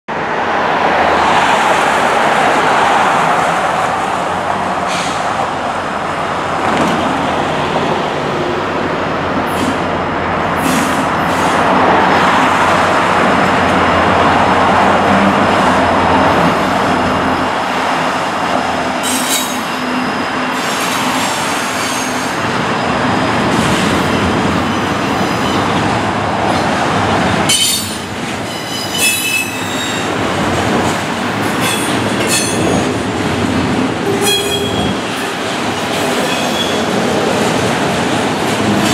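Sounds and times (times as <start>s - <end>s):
diesel locomotive engines droning: 0.1s - 38.9s
clicking over rails: 30.0s - 38.9s.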